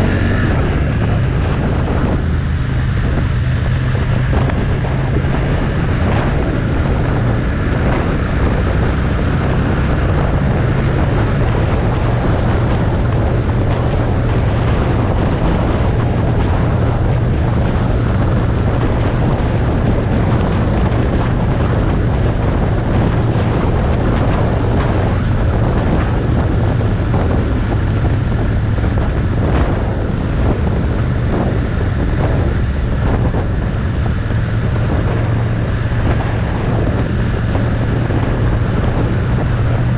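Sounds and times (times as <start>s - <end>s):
motorcycle engine cruising: 0.0s - 39.9s
wind buffeting microphone: 0.0s - 39.9s.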